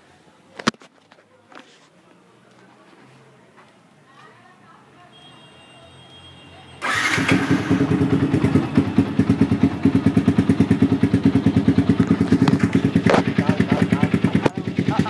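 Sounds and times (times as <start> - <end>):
motorcycle engine idling: 6.8 - 15.0.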